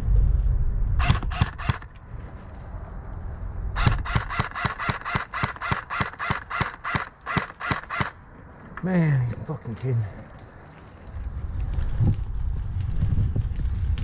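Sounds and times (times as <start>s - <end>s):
wind rumble on microphone: 0.0s - 4.4s, 8.2s - 14.0s
airsoft gun shots: 1.0s - 2.0s, 3.8s - 8.2s.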